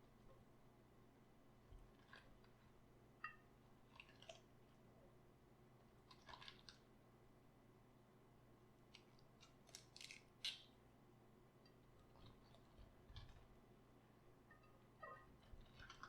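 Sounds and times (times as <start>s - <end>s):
cabbage crunching by hand: 9.4s - 10.7s.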